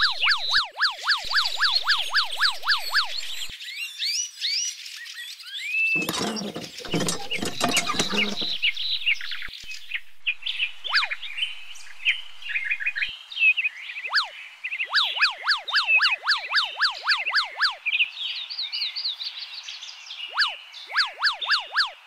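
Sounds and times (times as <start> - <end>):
birds chirping: 0.0 - 3.5, 5.9 - 13.1
rustling scraping noise: 6.0 - 10.2.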